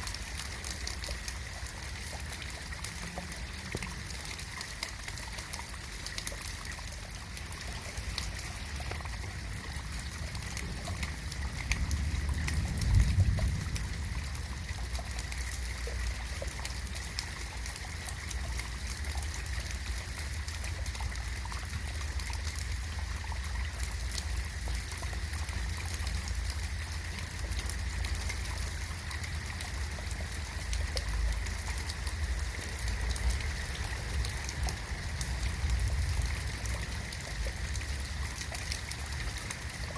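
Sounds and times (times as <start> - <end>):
raindrops ticking: 0.0 - 39.9
steady rain hiss: 0.0 - 39.9
low rumble: 10.3 - 16.0.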